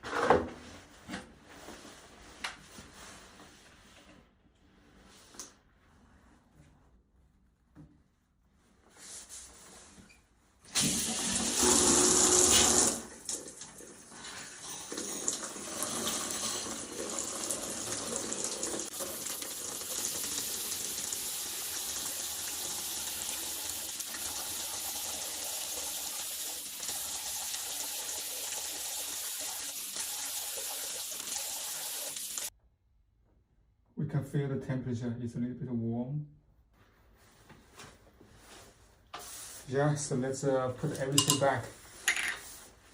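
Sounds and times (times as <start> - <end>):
shower water running: 10.6 - 32.5.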